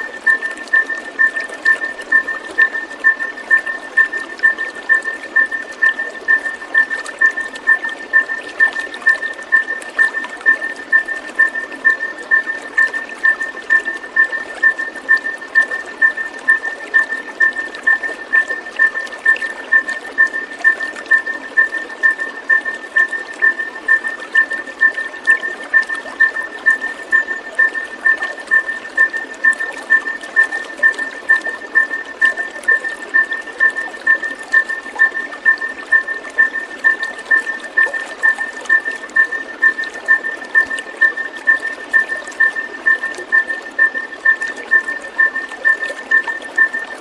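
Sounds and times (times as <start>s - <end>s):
water trickling and pouring: 0.0s - 47.0s.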